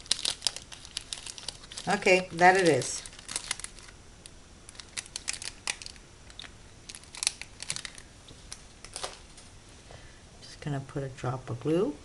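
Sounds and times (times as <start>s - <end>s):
craft materials clicking and rustling: 4.7s - 9.2s.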